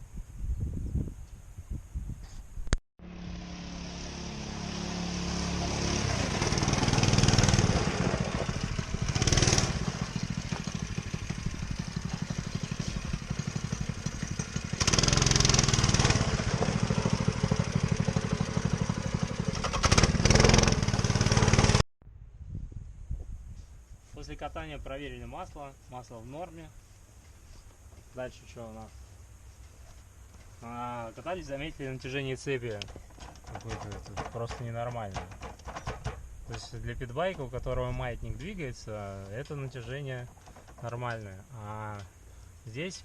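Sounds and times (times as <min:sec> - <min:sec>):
motorcycle engine revving: 0:03.0 - 0:21.8.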